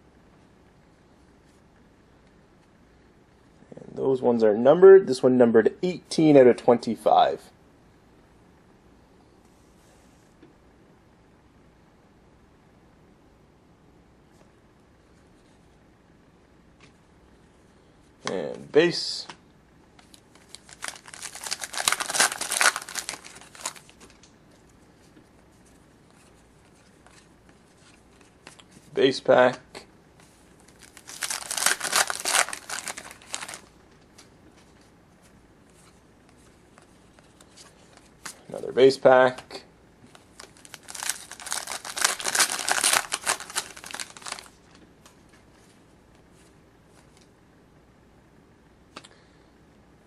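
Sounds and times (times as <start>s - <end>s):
cards being handled: 20.0s - 28.9s, 30.2s - 34.9s, 35.7s - 38.5s, 40.1s - 45.8s
wrapper crinkling and tearing: 20.4s - 24.3s, 30.6s - 33.7s, 40.1s - 44.7s.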